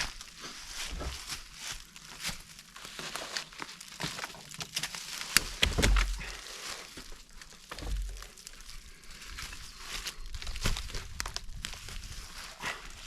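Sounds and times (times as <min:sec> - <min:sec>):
rustling and crunching: 0:00.0 - 0:13.0
dull thump: 0:05.6 - 0:06.3, 0:07.7 - 0:08.3.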